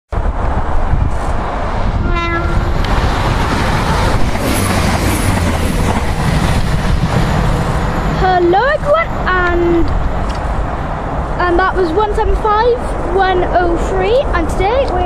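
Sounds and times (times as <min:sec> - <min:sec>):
train rumbling on rails: 0:00.1 - 0:15.0
train horn note: 0:02.0 - 0:02.9.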